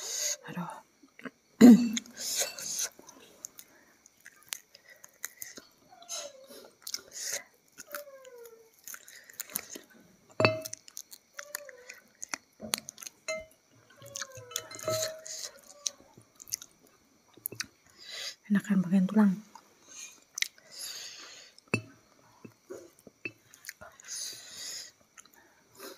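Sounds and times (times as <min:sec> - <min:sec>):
mouth chewing and smacking: 0:02.8 - 0:05.7, 0:06.6 - 0:09.9, 0:10.6 - 0:13.3, 0:13.9 - 0:18.0, 0:20.2 - 0:20.6.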